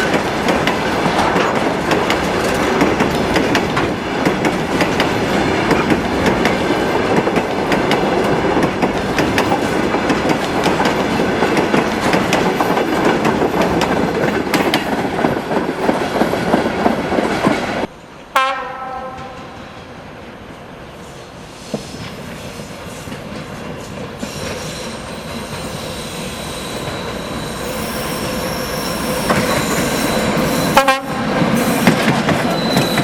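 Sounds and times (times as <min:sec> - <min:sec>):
train wheels clattering over rail joints: 0:00.0 - 0:17.9, 0:29.2 - 0:33.0
train horn: 0:18.3 - 0:19.6, 0:29.7 - 0:31.3.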